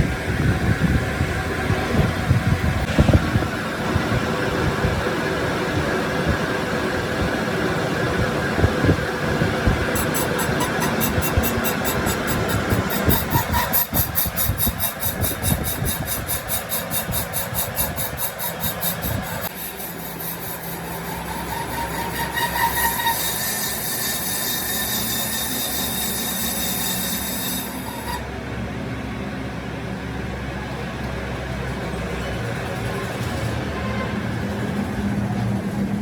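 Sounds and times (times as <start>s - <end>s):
metalworking machine running: 0.0s - 29.8s
rapid rhythmic rasping: 9.8s - 28.2s.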